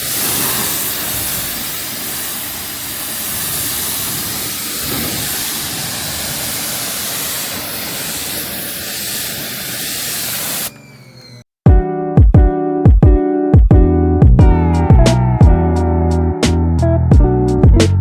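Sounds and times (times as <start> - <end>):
water spraying hiss: 0.0 - 11.2.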